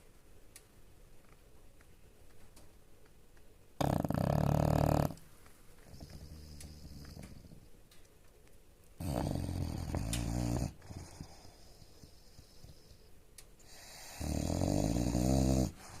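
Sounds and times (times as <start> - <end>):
dog snoring: 3.8 - 5.2, 5.8 - 7.7, 9.0 - 13.0, 13.6 - 16.0
dog breathing quietly: 3.8 - 7.8, 9.0 - 16.0.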